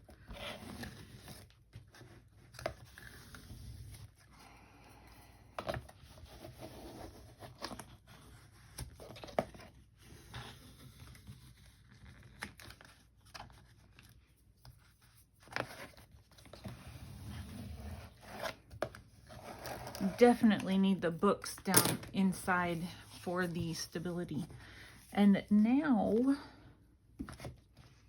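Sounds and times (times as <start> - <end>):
paper rustling and crinkling: 6.6 - 16.8.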